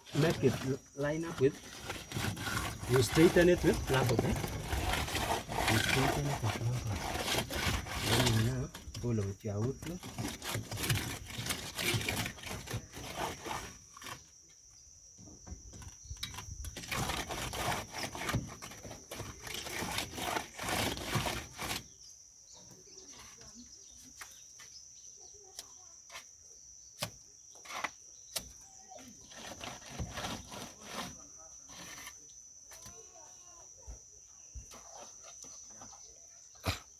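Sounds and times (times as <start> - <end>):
float scraping over mortar: 0.0 - 14.4, 15.7 - 22.0, 29.0 - 33.0.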